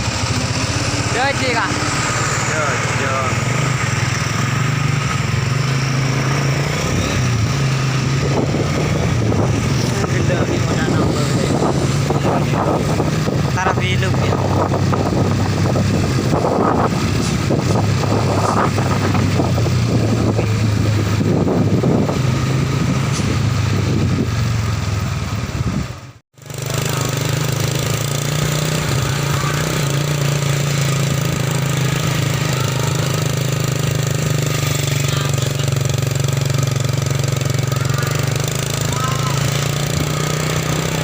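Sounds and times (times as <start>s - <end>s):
truck engine rattling: 0.0s - 41.0s
voices: 0.7s - 4.2s, 8.9s - 14.8s, 28.5s - 41.0s.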